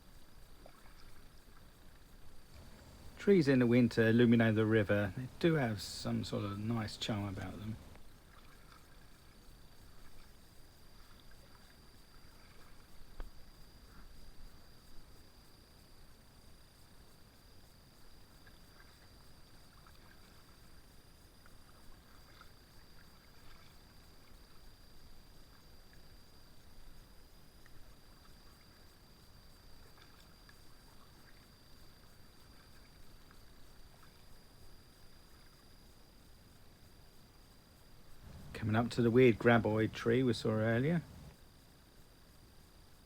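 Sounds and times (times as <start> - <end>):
faint high whine: 0.0 - 17.0, 26.2 - 42.9
paddle splashes and drips: 0.1 - 13.6, 18.3 - 26.6, 27.5 - 35.6.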